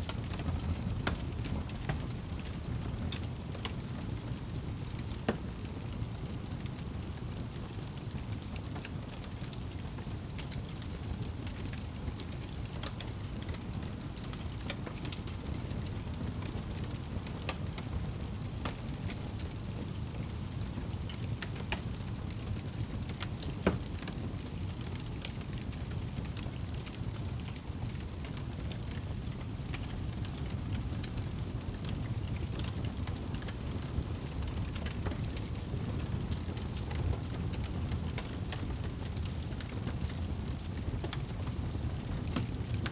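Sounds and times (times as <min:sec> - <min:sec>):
fire crackling and popping: 0:00.0 - 0:42.9
steady rain: 0:00.0 - 0:42.9.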